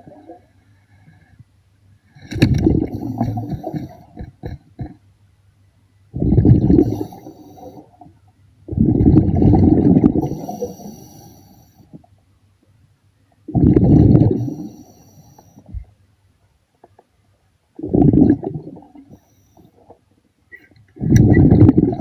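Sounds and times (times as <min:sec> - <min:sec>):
air bubbles exhaled underwater: 0:02.3 - 0:05.0, 0:06.1 - 0:07.9, 0:08.7 - 0:10.8, 0:13.5 - 0:14.8, 0:17.8 - 0:19.2, 0:21.0 - 0:22.0.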